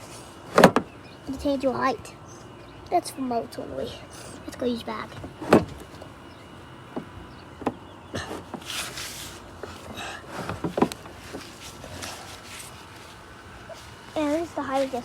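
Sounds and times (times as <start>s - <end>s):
rustling: 8.3s - 15.0s.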